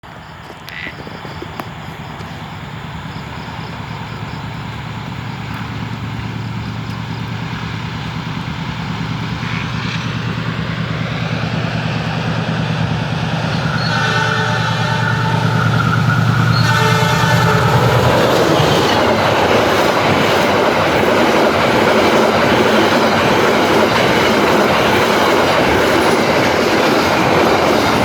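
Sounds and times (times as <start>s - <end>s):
approaching train hum: 0.0s - 28.0s
train horn: 13.3s - 19.0s.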